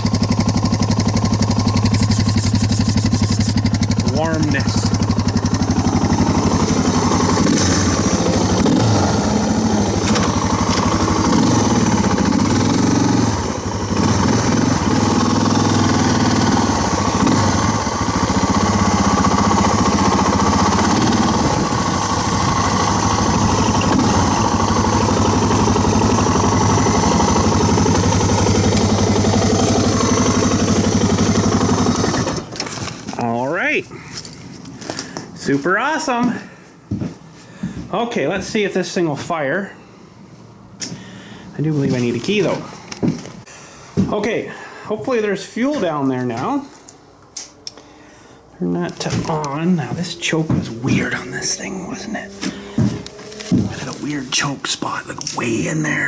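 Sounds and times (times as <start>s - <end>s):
dirt bike engine idling: 0.0s - 35.4s, 48.9s - 54.2s.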